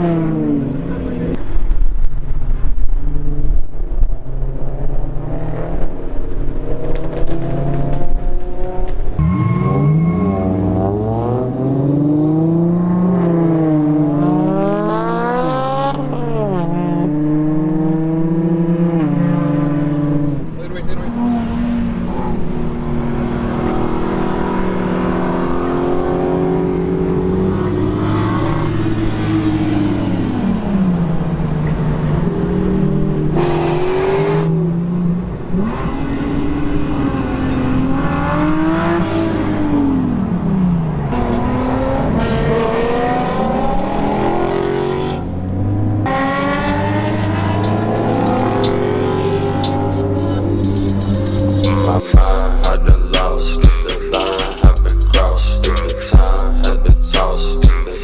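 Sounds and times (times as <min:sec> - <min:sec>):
car engine revving: 0:03.0 - 0:58.0
drone of engines running: 0:47.6 - 0:58.0.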